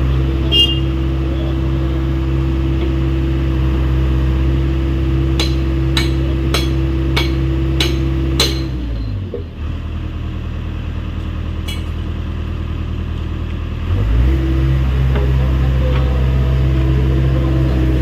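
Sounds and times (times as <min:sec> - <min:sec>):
excavator diesel engine running: 0:00.0 - 0:18.0
hammer blows on metal: 0:05.4 - 0:08.9.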